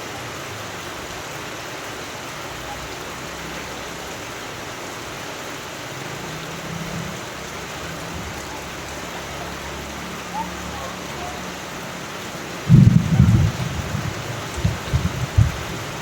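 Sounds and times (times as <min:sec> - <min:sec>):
steady rain hiss: 0:00.0 - 0:16.0
low rumble: 0:12.7 - 0:16.0.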